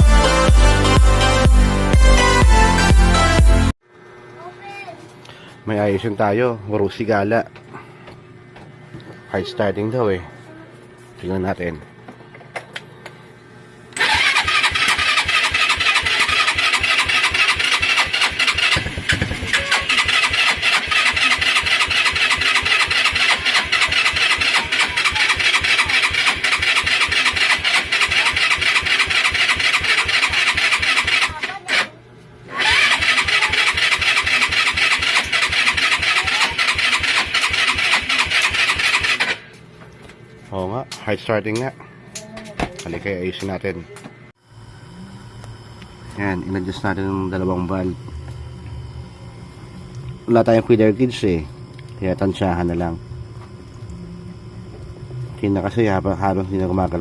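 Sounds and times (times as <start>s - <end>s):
motorcycle engine cranking: 14.0s - 31.9s, 32.6s - 39.4s.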